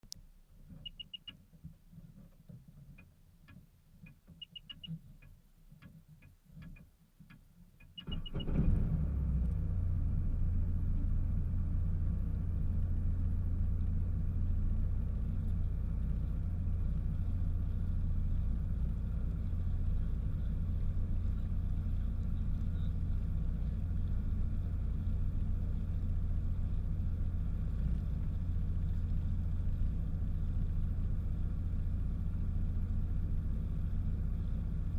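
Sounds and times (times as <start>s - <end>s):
short electronic beeps: 0.8s - 1.3s, 4.4s - 5.0s, 7.8s - 8.5s
jet ski engine rumbling: 8.0s - 34.9s.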